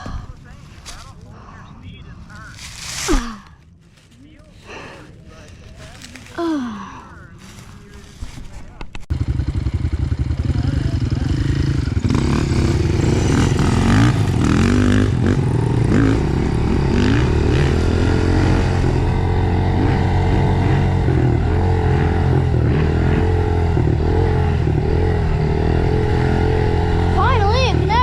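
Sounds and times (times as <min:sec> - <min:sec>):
dirt bike engine revving: 0:09.1 - 0:28.0.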